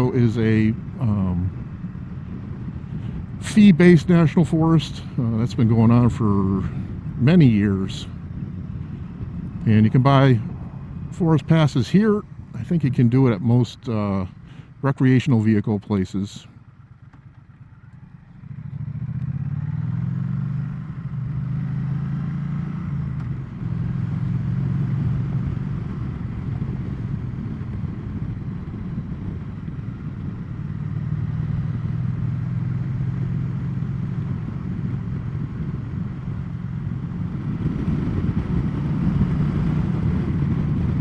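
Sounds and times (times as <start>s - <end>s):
wind and road rush: 0.0s - 41.0s
motorcycle engine shifting gears: 16.9s - 41.0s.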